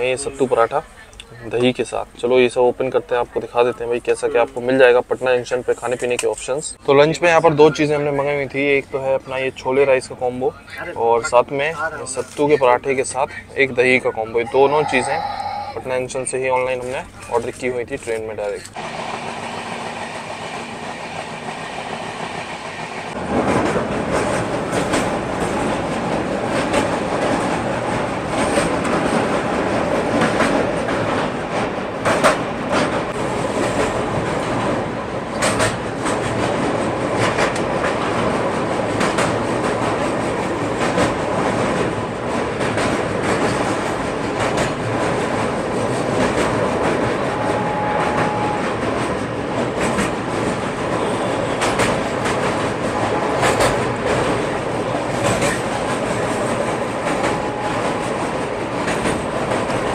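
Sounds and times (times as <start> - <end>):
passenger train rumbling: 0.0 - 59.9
wheels clattering over rail joints: 16.2 - 59.9.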